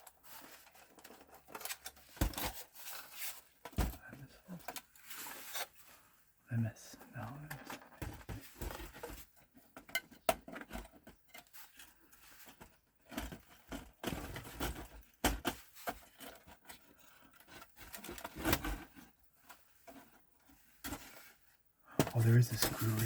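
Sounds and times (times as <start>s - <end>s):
plastic casing clicks and scrapes: 0.0s - 4.0s.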